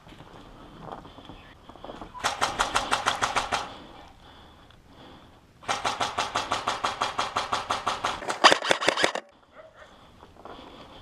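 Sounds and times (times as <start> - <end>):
airsoft gun full-auto burst: 2.2 - 3.7, 5.6 - 9.2.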